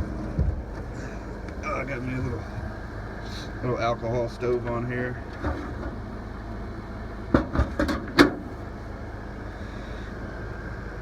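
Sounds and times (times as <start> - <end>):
generator humming: 0.0 - 11.0
sharp knocks and clicks: 7.3 - 8.4.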